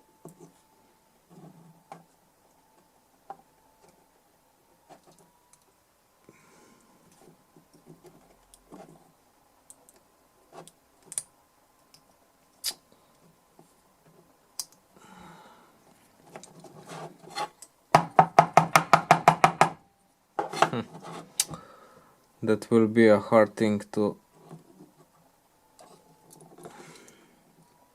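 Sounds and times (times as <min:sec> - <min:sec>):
rapid sharp knocks: 0:18.0 - 0:19.8.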